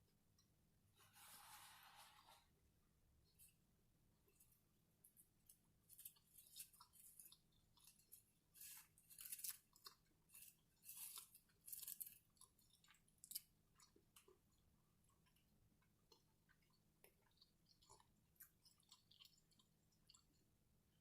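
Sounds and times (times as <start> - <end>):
crisp chewing crunches: 5.8 - 20.5.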